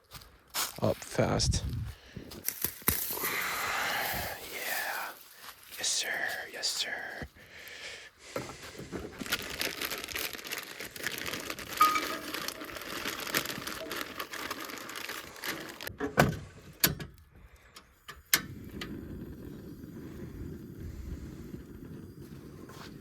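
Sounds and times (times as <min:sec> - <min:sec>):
paper or plastic crinkling: 0:08.4 - 0:16.0.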